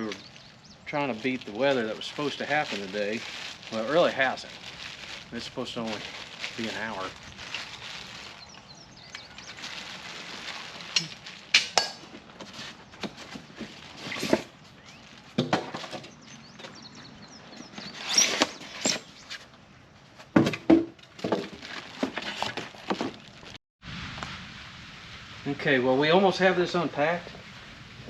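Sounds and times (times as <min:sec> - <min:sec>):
packaging rustling: 0:00.0 - 0:15.9, 0:21.2 - 0:23.6.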